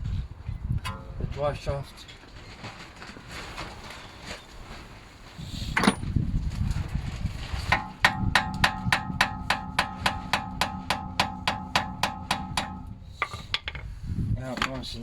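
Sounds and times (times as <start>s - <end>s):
metallic ringing: 0.8s - 1.4s, 7.8s - 13.4s
hammer tapping on steel: 7.7s - 13.6s.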